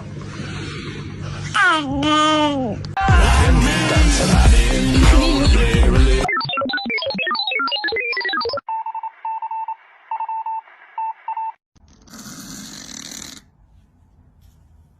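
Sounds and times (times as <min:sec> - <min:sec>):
electronic ringtone melody: 0:06.2 - 0:09.6.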